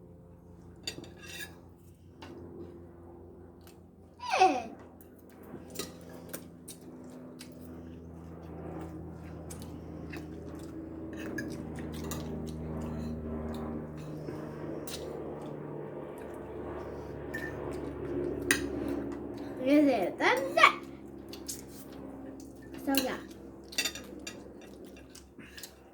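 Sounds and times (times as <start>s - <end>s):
low hum: 0.0s - 20.2s
soft eating sounds: 3.5s - 25.9s
cutlery clicking against dishes: 11.2s - 13.1s, 18.4s - 18.9s, 22.4s - 25.8s.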